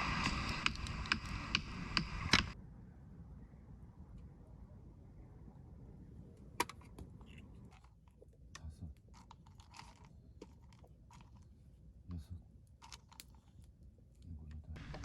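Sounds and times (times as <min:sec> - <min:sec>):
sharp click: 0:00.0 - 0:02.6
small clicks and crinkling rustles: 0:00.0 - 0:02.6, 0:06.6 - 0:11.9, 0:12.6 - 0:15.0
low rumble: 0:00.0 - 0:06.6.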